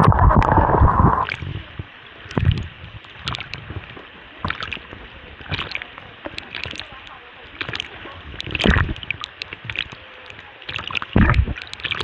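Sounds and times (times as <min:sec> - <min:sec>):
loud rushing noise: 0:00.0 - 0:01.3
water drips: 0:00.0 - 0:12.0
water splashing and sloshing: 0:00.0 - 0:12.0.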